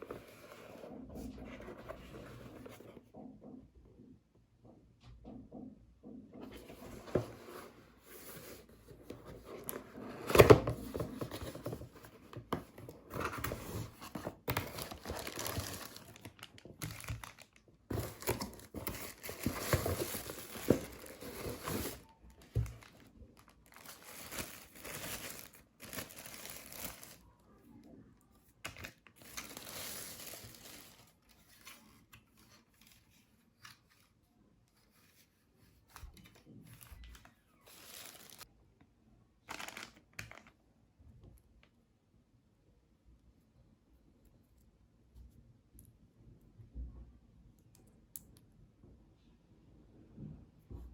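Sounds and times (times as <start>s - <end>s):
packaging crinkling and tearing: 13.3s - 27.2s, 28.7s - 31.2s, 37.0s - 38.5s, 39.5s - 40.6s.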